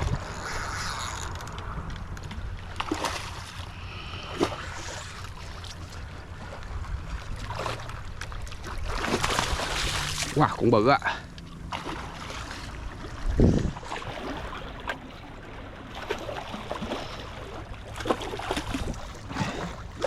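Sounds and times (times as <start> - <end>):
wind buffeting microphone: 0.0 - 2.7, 13.0 - 14.5
water washing on shoreline: 2.7 - 20.0.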